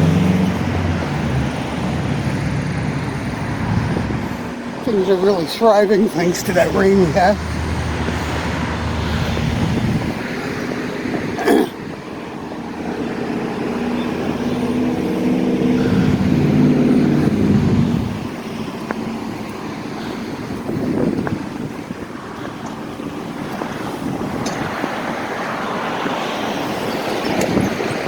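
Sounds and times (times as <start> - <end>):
traffic noise: 0.0 - 28.0
vehicle passing: 0.0 - 28.0.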